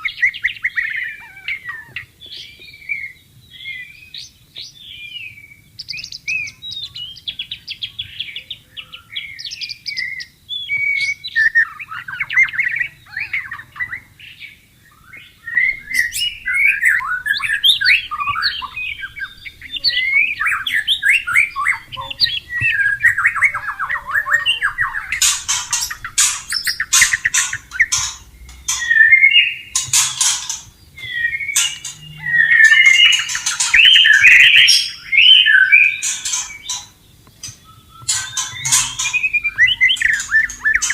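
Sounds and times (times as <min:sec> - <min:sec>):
bird singing whistled phrases: 0:14.9 - 0:36.9, 0:37.5 - 0:40.9
harsh rasping bird notes: 0:15.6 - 0:40.9.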